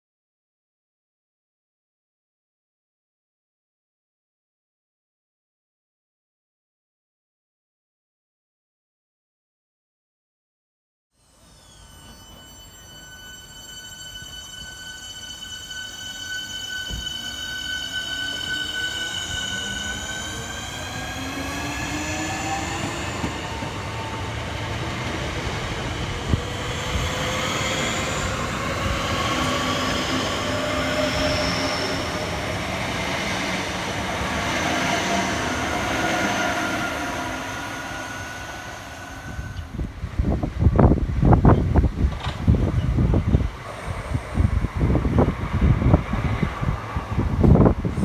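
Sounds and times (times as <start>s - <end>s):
train traction motors whining: 11.2s - 48.0s
wheels rumbling on rail: 11.9s - 48.0s.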